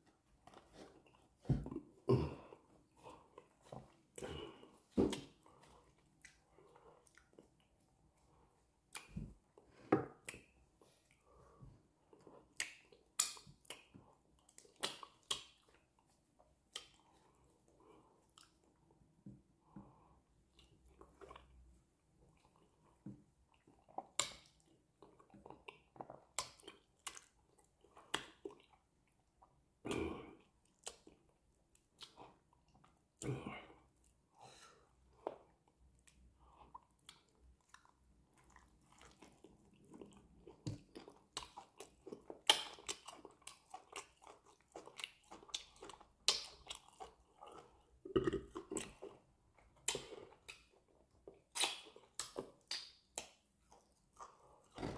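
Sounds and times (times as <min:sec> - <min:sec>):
chewing with wet clicks: 0:06.0 - 0:09.6, 0:12.1 - 0:18.8, 0:19.9 - 0:21.7, 0:22.3 - 0:29.6, 0:30.4 - 0:33.3, 0:34.9 - 0:54.8.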